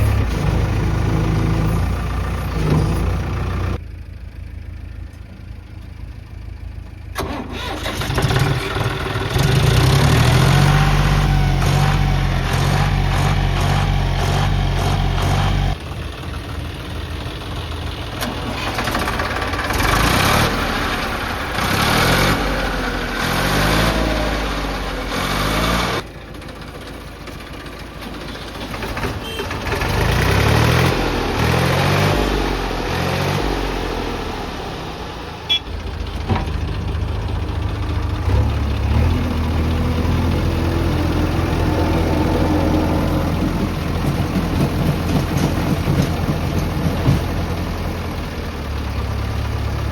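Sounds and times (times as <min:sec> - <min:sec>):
heavy diesel engine revving: 0:07.2 - 0:16.0, 0:17.8 - 0:26.1, 0:29.5 - 0:49.9.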